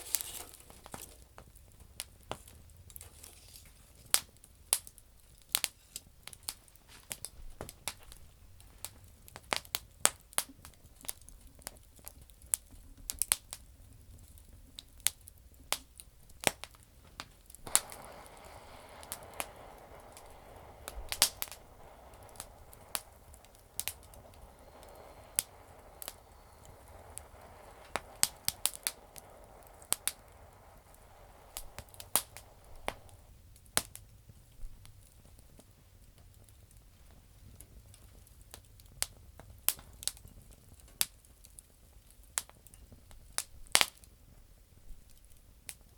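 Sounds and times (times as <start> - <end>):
steady hiss: 0.0 - 4.0, 14.1 - 38.8
campfire crackling and popping: 0.0 - 45.9.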